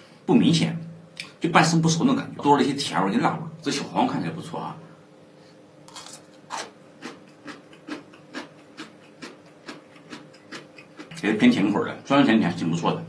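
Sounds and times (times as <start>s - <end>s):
person chewing crunchy pickle: 5.9s - 11.4s.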